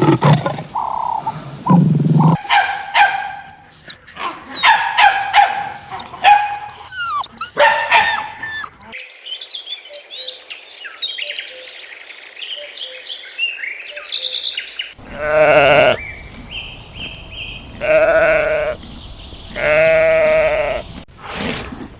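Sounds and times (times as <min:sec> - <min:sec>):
small birds chirping: 0:00.0 - 0:09.0, 0:12.9 - 0:21.1
dog barking: 0:02.2 - 0:09.0.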